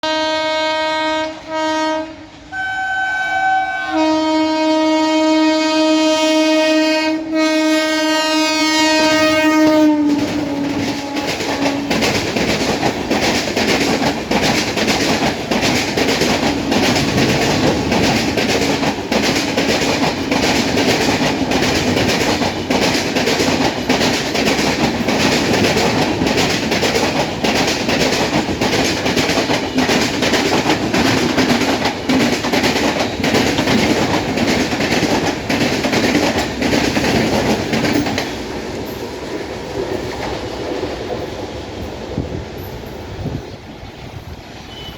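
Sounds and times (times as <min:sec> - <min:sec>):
locomotive horn blasts: 0:00.0 - 0:12.0, 0:44.6 - 0:44.9
train rushing past: 0:00.0 - 0:44.9
wheels clattering over rails: 0:10.0 - 0:43.0.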